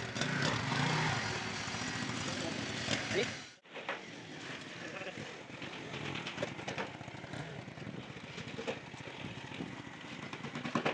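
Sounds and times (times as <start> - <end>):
motorcycle engine idling: 5.4 - 10.9.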